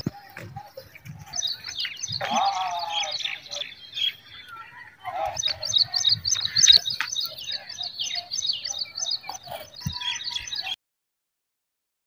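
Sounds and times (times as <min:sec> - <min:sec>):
small bird chirping: 0:00.7 - 0:04.6, 0:05.3 - 0:10.8.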